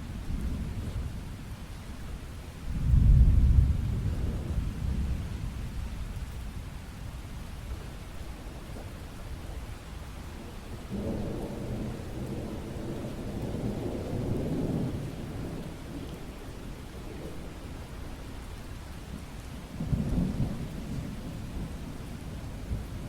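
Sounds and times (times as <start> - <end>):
steady rain: 0.0 - 23.0
rolling thunder: 2.7 - 6.8.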